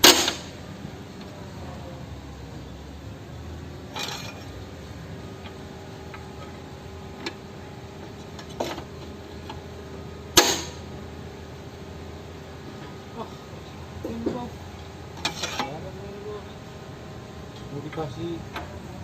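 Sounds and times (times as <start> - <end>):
faint steady hum: 0.0 - 19.0
tools clinking on metal: 4.0 - 4.5.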